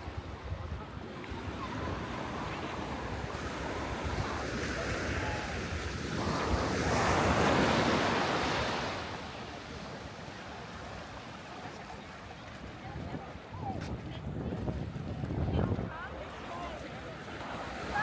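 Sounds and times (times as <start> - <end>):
sea waves breaking: 1.4 - 18.0
wind on microphone: 12.8 - 16.2.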